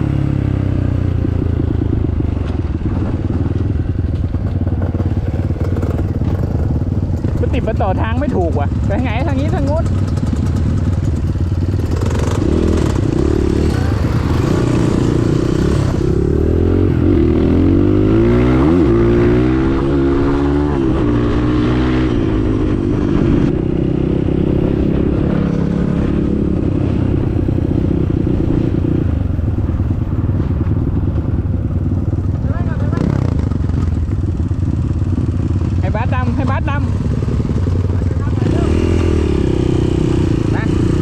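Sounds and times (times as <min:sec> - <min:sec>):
motorcycle engine running: 0:00.0 - 0:41.0
riding noise: 0:01.2 - 0:19.2.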